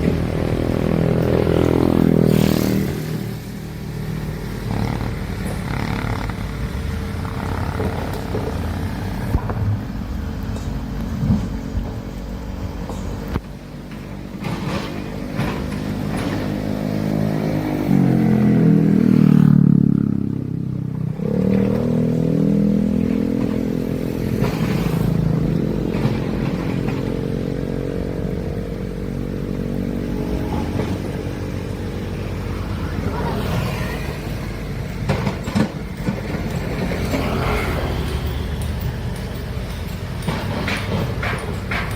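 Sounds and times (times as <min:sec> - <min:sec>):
excavator diesel engine: 0:00.0 - 0:41.9
metal clanks: 0:33.3 - 0:41.9.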